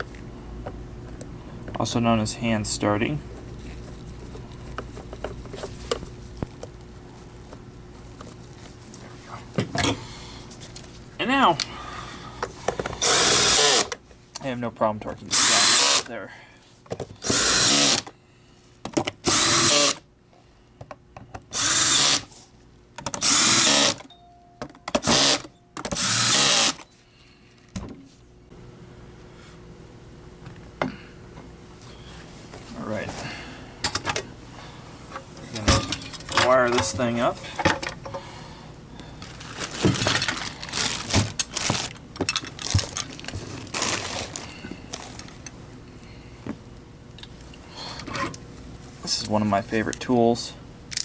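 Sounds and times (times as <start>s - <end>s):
power drill driving screws: 13.0s - 13.9s, 15.3s - 16.1s, 17.2s - 18.1s, 19.2s - 20.0s, 21.5s - 22.3s, 23.1s - 24.1s, 25.0s - 26.8s.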